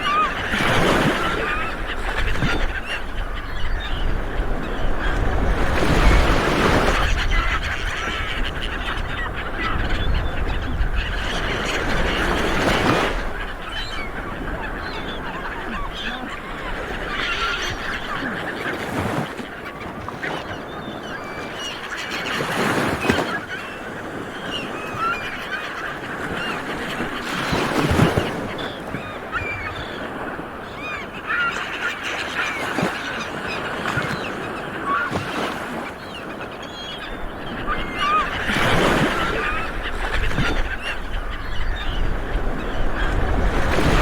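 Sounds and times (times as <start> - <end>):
flock of seabirds calling: 0.0 - 44.0.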